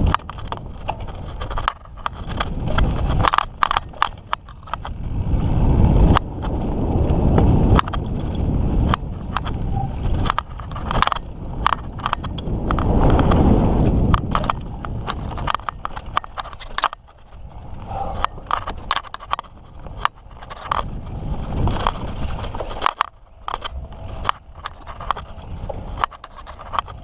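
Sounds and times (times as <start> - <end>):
bike clicking and rattling over bumps: 0.0 - 27.0.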